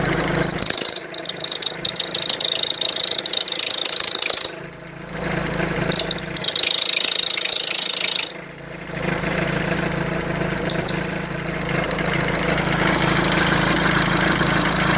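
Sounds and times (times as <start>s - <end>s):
car engine idling: 0.0s - 14.9s
high hissing squeak: 0.4s - 4.6s, 5.8s - 8.4s, 9.0s - 10.0s, 10.6s - 11.3s.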